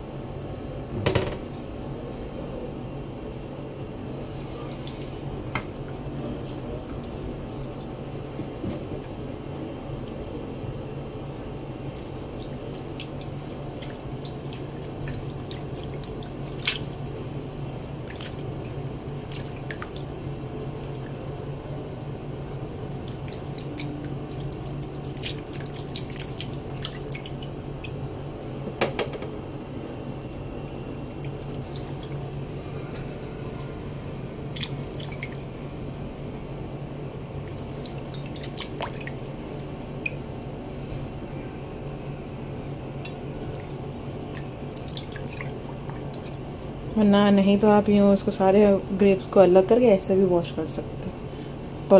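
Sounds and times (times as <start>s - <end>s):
steady low hum: 0.0s - 51.9s
water splashing and dripping: 11.9s - 17.1s, 18.0s - 21.5s, 23.0s - 28.0s, 31.2s - 32.2s, 33.0s - 35.8s, 37.4s - 40.2s, 43.4s - 46.4s.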